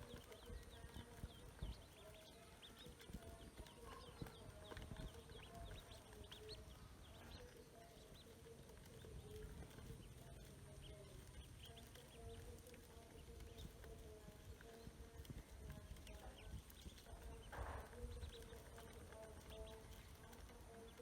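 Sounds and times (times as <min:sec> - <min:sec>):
ducklings peeping: 0:00.0 - 0:21.0.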